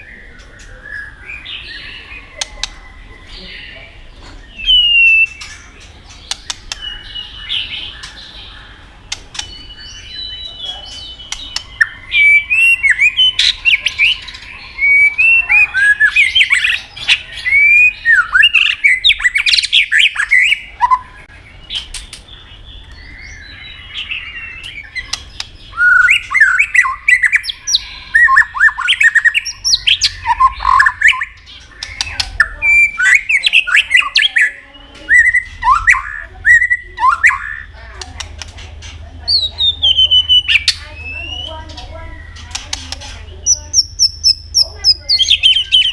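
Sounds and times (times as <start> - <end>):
bird singing whistled song: 0.0 - 37.7, 39.3 - 42.7, 43.3 - 45.9
sharp clicks: 5.3 - 6.9, 9.1 - 9.6, 11.3 - 11.8, 42.3 - 43.2.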